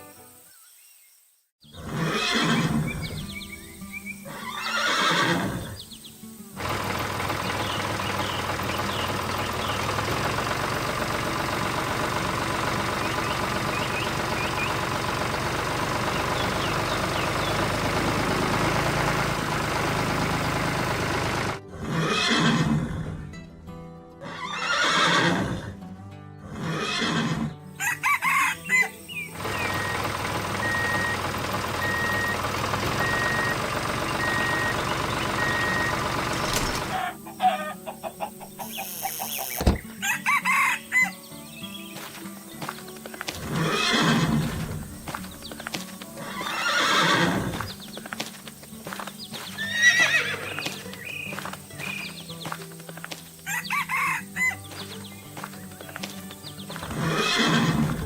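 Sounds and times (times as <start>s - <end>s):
cartoon background music: 27.7s - 30.0s, 36.6s - 41.3s.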